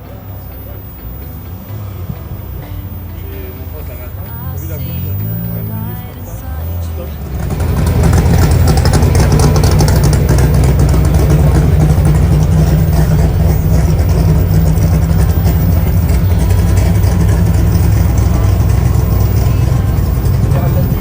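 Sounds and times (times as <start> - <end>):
car engine running: 0.0 - 21.0.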